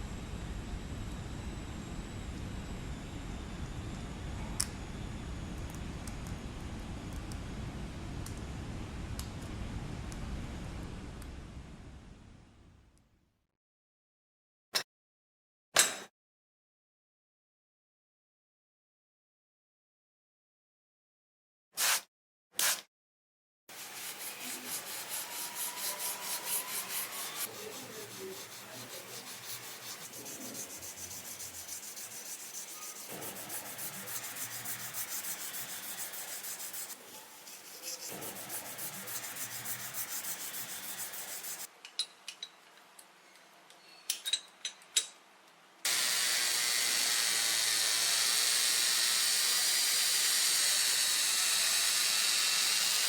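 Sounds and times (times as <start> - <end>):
hand sanding rubbing strokes: 23.7 - 41.7.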